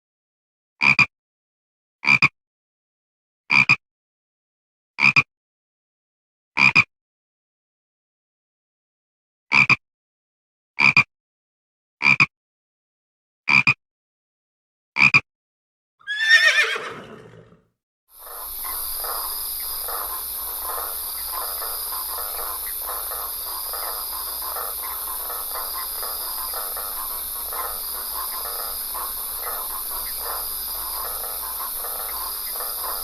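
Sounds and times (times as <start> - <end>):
horse whinnying: 16.0 - 17.6
short animal calls: 16.1 - 17.6, 18.2 - 33.0
busy animal chatter: 18.2 - 33.0.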